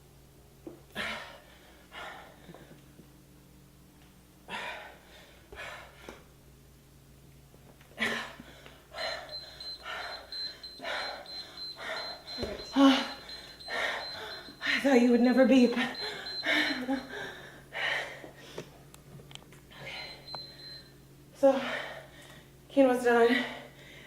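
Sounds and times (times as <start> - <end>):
rapid high electronic beeps: 9.3 - 14.7, 15.5 - 17.1, 19.8 - 20.9.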